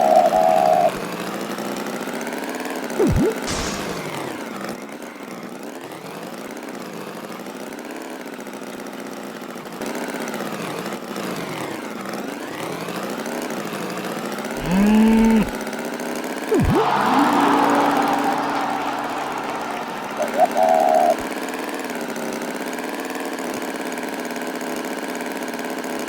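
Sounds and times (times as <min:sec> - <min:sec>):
rising loud tone: 0:03.0 - 0:04.3, 0:16.5 - 0:21.3.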